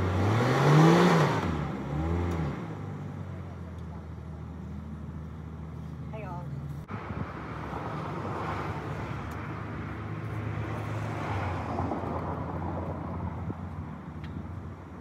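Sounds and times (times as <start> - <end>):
vehicle engine idling: 2.7 - 7.1.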